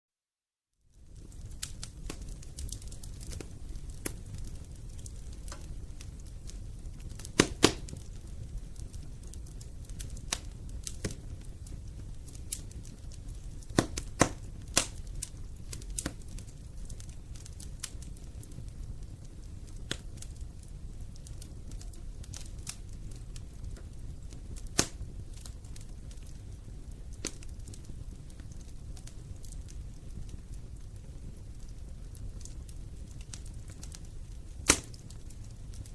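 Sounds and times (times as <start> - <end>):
wood fire crackling: 0.8 - 35.9
sharp pops of fire: 1.0 - 35.9.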